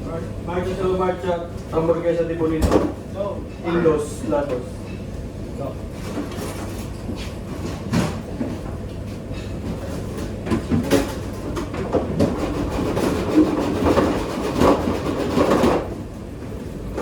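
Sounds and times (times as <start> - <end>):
kitchen rattling and clattering: 9.8 - 15.9.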